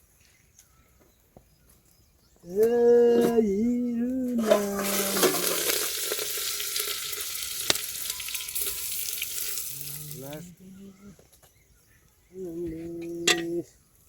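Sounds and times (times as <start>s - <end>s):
food sizzling in hot oil: 4.4s - 10.4s
drawn-out animal call: 6.5s - 11.3s.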